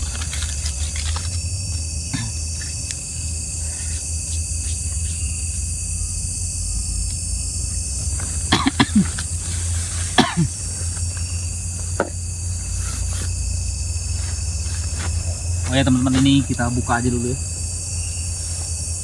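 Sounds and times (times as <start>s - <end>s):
crickets chirring: 0.0s - 19.0s
person coughing: 2.1s - 2.5s, 8.5s - 9.2s, 10.1s - 10.7s.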